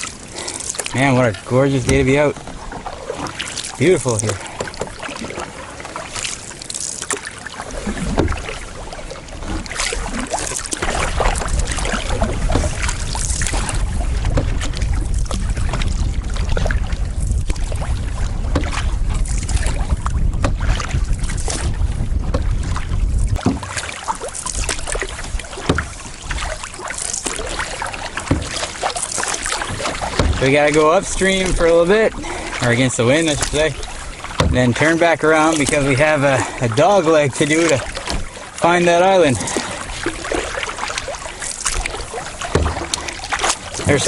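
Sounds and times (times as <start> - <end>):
paddle splashing in water: 0.0 - 44.0
wind buffeting microphone: 7.7 - 26.8, 27.4 - 38.5.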